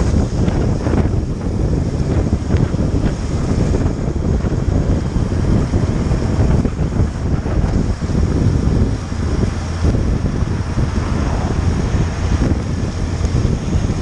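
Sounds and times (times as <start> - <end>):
motorcycle engine: 0.0 - 14.0
road noise: 0.0 - 14.0
wind buffeting microphone: 0.0 - 14.0.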